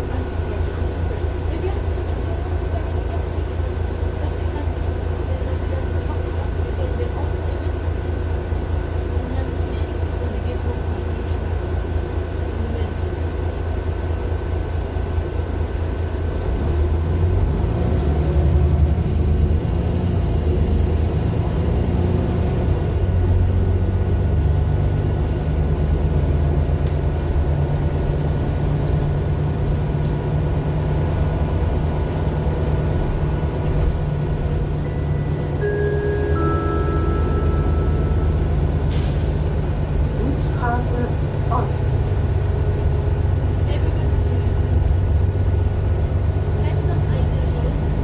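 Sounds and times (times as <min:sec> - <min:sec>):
bus diesel engine driving: 0:00.0 - 0:48.0.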